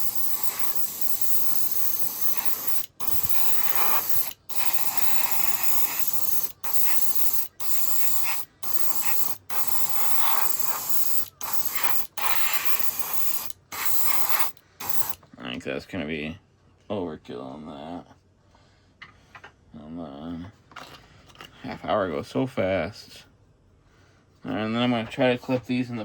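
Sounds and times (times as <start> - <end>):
spray paint can hissing: 0.0 - 15.2.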